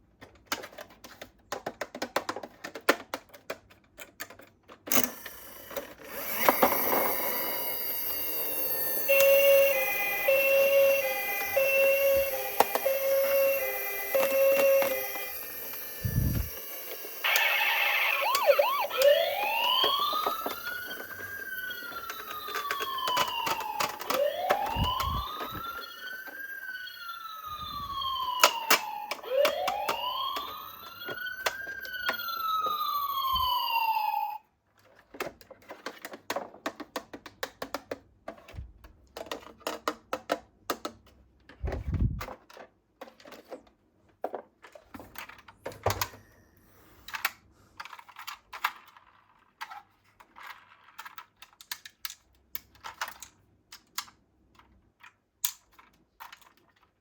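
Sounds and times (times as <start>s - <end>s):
toy siren wailing: 5.3s - 34.4s.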